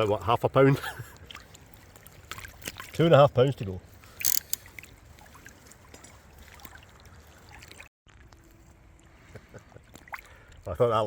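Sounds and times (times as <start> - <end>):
river water running: 3.8 - 8.2.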